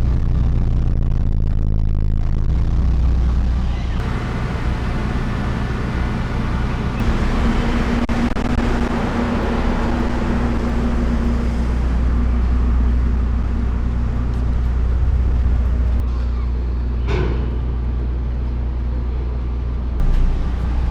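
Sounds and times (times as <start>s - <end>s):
vehicle engine rumble: 0.0s - 20.9s
road noise: 3.6s - 16.1s, 17.8s - 20.9s
humming tone: 4.0s - 16.0s.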